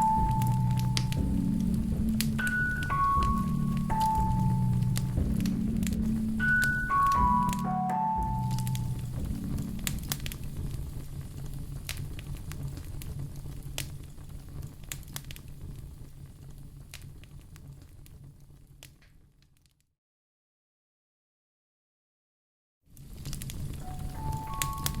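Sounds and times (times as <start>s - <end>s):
low steady rumble: 0.0s - 19.0s
wood fire crackling: 0.0s - 19.7s, 22.9s - 25.0s.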